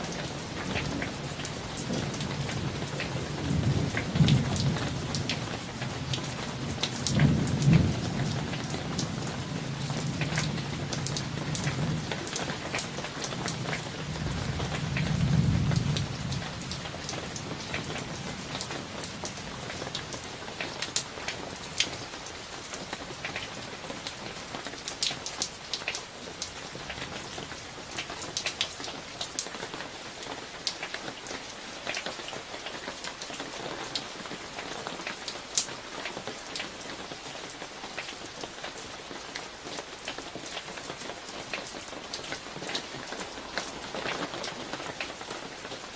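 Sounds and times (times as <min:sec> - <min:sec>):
rain drops ticking: 0:00.0 - 0:45.9
low rumble of thunder: 0:00.5 - 0:20.5.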